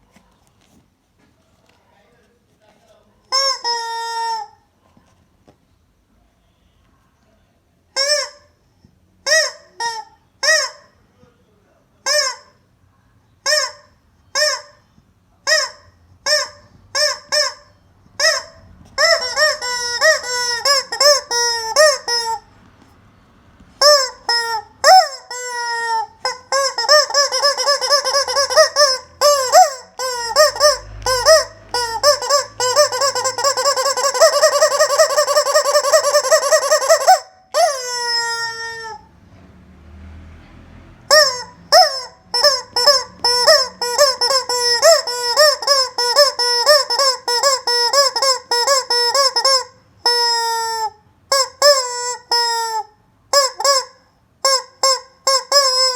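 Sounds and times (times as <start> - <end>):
rubber chicken toy squawking: 3.3 - 4.7, 7.9 - 8.6, 9.2 - 11.0, 12.0 - 12.7, 13.4 - 22.6, 23.7 - 39.1, 41.1 - 55.9.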